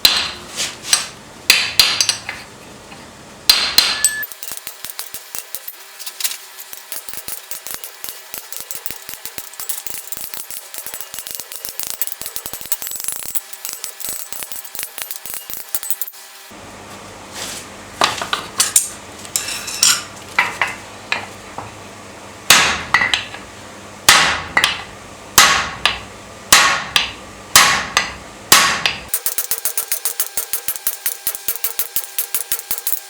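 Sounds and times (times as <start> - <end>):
hammer striking steel on anvil: 0.0 - 2.4, 3.5 - 5.8, 6.6 - 16.2, 24.1 - 24.8, 25.4 - 33.0.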